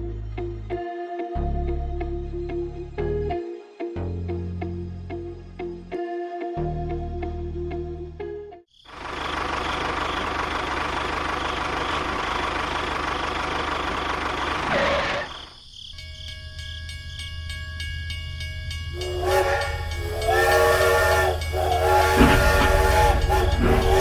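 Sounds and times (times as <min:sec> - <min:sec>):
train running: 0:09.0 - 0:15.4, 0:16.0 - 0:24.0
steady high tone: 0:16.0 - 0:24.0
train horn blasts: 0:19.0 - 0:24.0.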